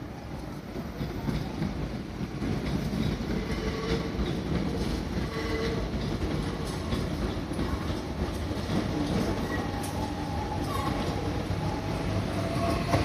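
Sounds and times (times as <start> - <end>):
train wheels clattering over rails: 0.3 - 13.0.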